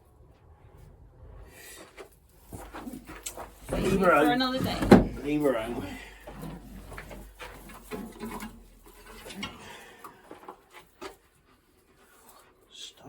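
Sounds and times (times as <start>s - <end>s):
pigeons being handled: 2.4s - 12.7s.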